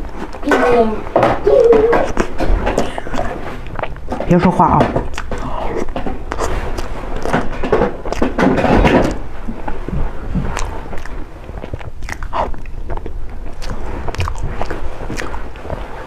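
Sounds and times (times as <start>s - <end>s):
biting and chewing: 0.0s - 16.0s
lip smacks: 5.1s - 16.0s.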